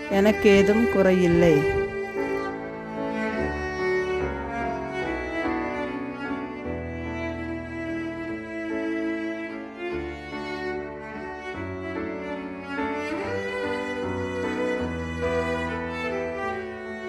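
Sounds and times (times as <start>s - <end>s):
slow bowed string music: 0.0s - 17.0s.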